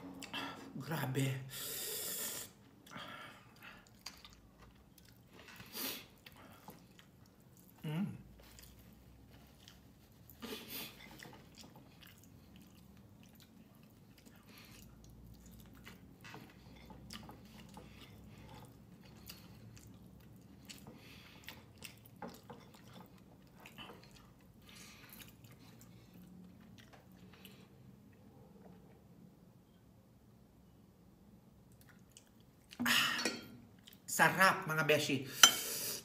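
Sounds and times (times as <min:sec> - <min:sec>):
chewing and mouth smacks: 0:02.7 - 0:29.0, 0:31.6 - 0:32.8, 0:33.7 - 0:34.1.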